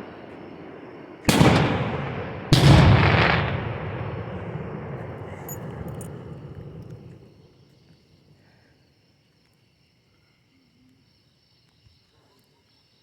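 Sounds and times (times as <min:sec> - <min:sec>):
long echo of bangs: 0:00.0 - 0:07.3
firework shells bursting: 0:01.3 - 0:07.3.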